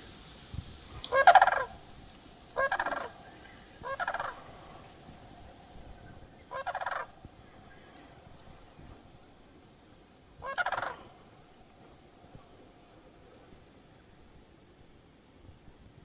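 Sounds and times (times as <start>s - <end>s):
bird rattling calls: 0.0s - 1.8s, 2.5s - 4.8s, 6.4s - 7.1s, 10.4s - 11.0s.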